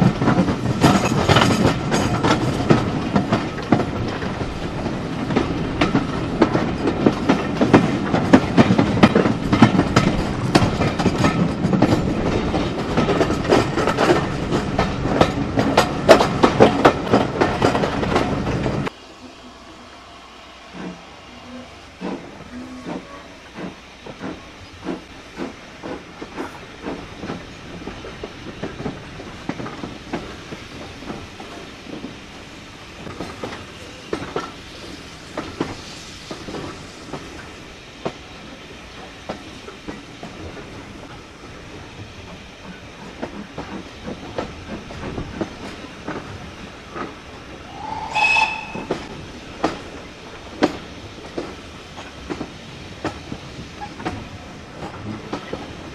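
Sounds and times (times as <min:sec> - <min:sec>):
train wheels clicking over rail joints: 0:00.0 - 0:18.9, 0:20.7 - 0:21.0, 0:21.7 - 0:55.9
train whistle blast: 0:19.1 - 0:23.4, 0:47.7 - 0:49.2.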